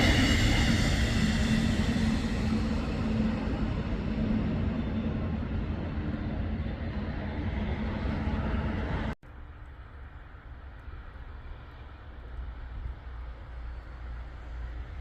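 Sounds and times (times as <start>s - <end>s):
locomotive rumbling: 0.0s - 10.1s.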